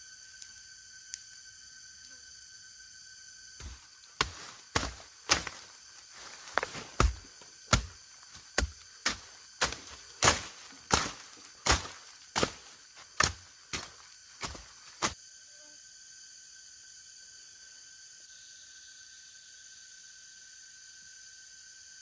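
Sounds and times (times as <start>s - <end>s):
insects buzzing: 0.0s - 22.0s
hand tool chopping: 3.6s - 5.6s, 6.4s - 15.2s.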